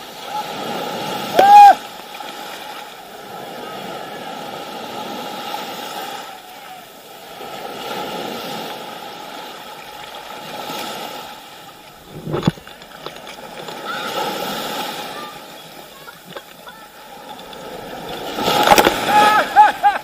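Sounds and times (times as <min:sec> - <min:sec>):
small waves washing on sand: 0:00.0 - 0:20.0.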